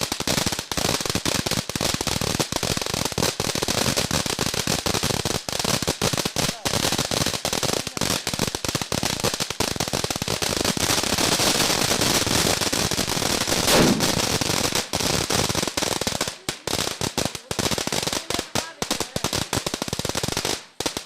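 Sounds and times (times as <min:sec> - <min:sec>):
firecrackers crackling: 0:00.0 - 0:21.0
loud bang: 0:13.7 - 0:14.6.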